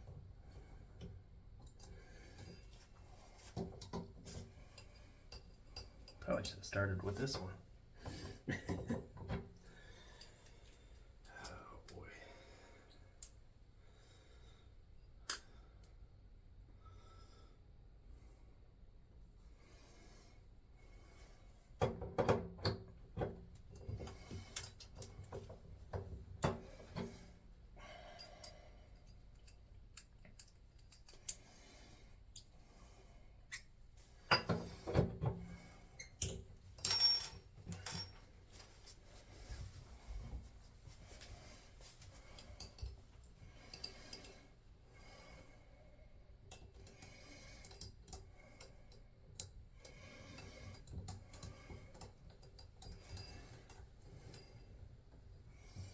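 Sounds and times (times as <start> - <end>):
small metal tools clinking: 36.1 - 38.2.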